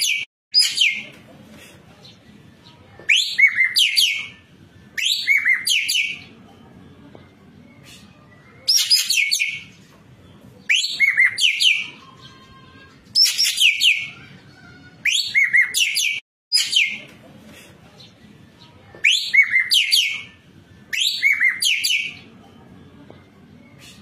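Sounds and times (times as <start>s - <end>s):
bird harsh downward calls: 3.1s - 6.3s, 10.6s - 17.1s, 19.0s - 22.2s.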